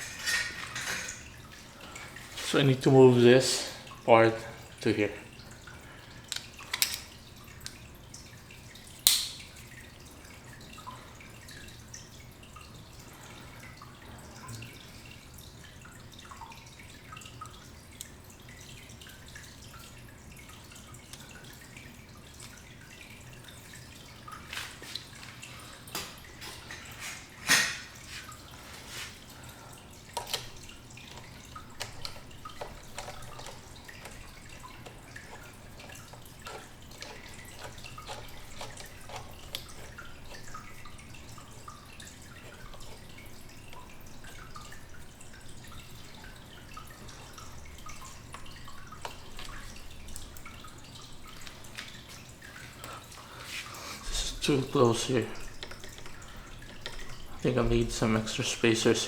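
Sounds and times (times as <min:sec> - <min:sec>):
bicycle parts clicking and tapping: 0:06.3 - 0:07.8, 0:09.0 - 0:09.4, 0:30.2 - 0:40.5, 0:55.5 - 0:57.3.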